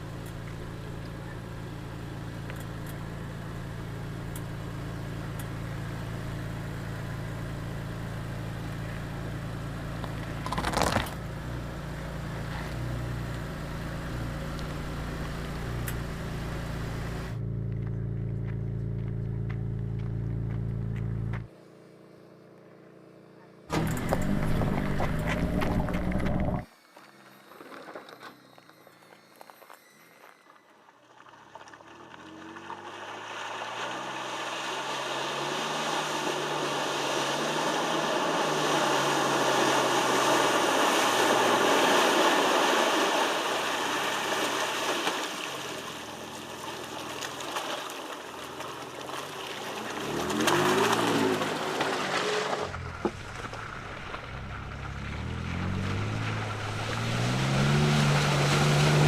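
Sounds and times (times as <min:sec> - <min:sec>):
truck engine revving: 0:00.0 - 0:21.5, 0:23.7 - 0:26.7, 0:33.7 - 0:43.6, 0:49.7 - 0:59.0.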